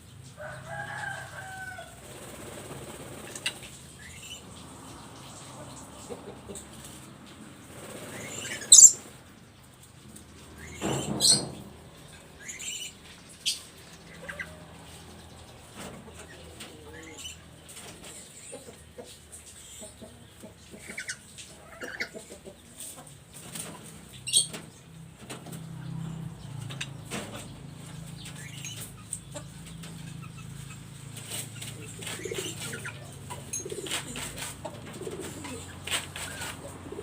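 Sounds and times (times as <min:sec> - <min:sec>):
soft chattering calls: 0:07.9 - 0:09.2.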